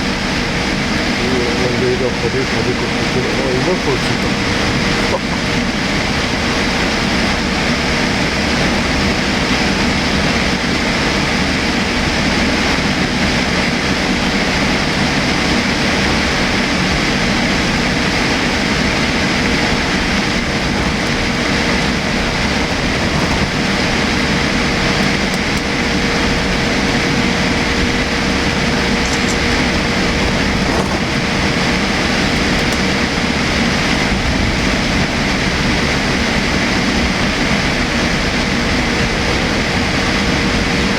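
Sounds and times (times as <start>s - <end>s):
airliner cabin airflow and engine noise: 0.0s - 40.9s
thin steady hum: 16.5s - 40.9s.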